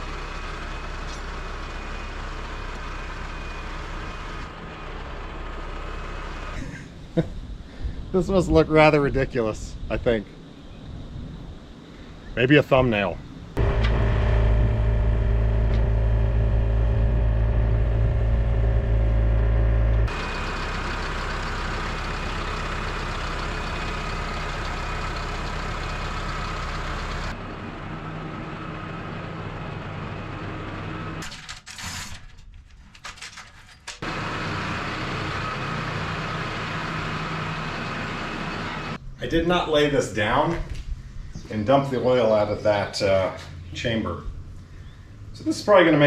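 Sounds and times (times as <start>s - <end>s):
machine engine running: 13.6s - 31.2s.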